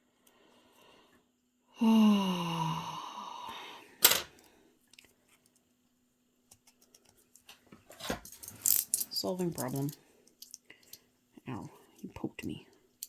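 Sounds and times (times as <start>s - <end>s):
person sighing: 1.8s - 4.2s.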